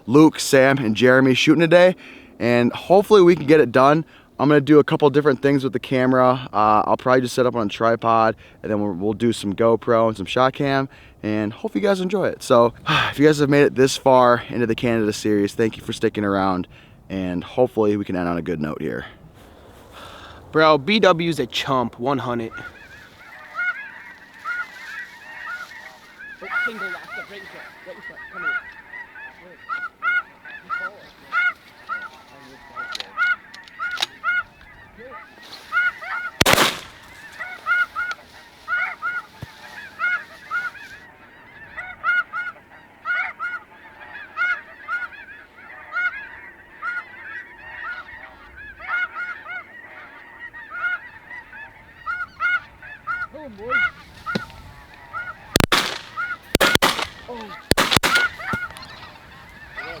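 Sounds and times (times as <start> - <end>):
geese honking: 20.0 - 60.0
shotgun blasts: 36.4 - 37.4, 55.5 - 58.8.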